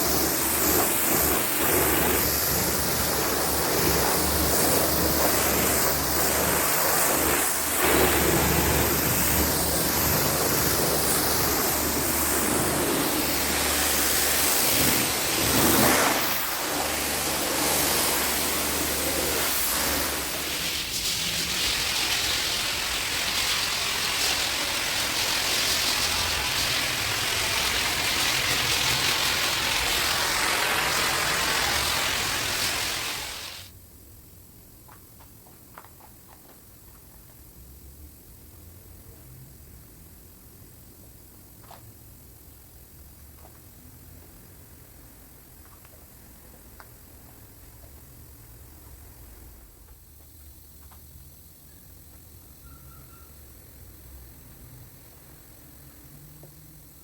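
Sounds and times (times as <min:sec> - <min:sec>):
water spray hissing: 0:00.0 - 0:33.7
pressure washer motor humming: 0:05.3 - 0:33.6.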